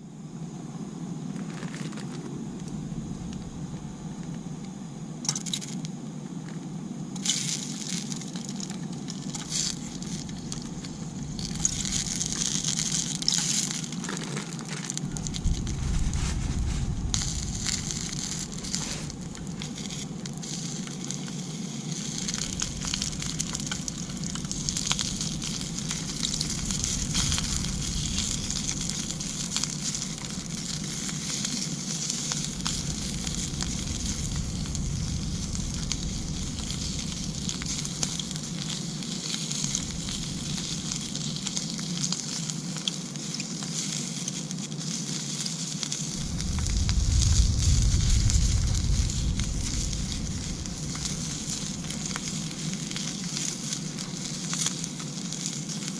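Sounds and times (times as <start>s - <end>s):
crackling hiss: 0.0s - 55.9s
low rumble: 2.3s - 5.0s, 9.2s - 13.9s, 15.0s - 42.2s, 46.1s - 54.6s.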